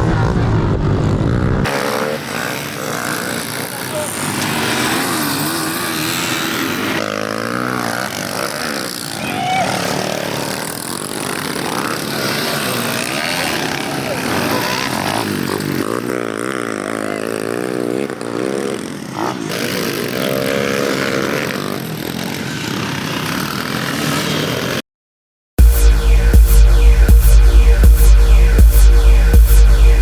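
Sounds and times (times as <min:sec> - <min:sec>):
small motorbike engines revving: 0:00.0 - 0:24.8.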